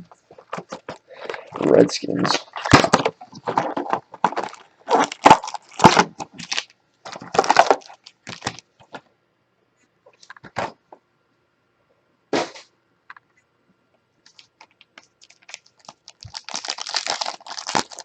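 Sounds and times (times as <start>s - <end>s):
plastic packaging crinkling and tearing: 1.3s - 8.6s, 14.3s - 18.0s.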